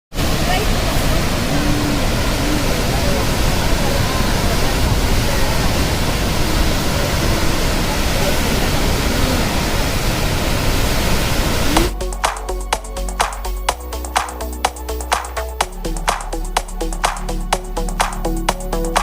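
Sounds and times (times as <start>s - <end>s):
water roaring through dam gates: 0.2s - 12.0s
faint voices: 0.3s - 9.9s
electronic music with a beat: 11.7s - 19.0s.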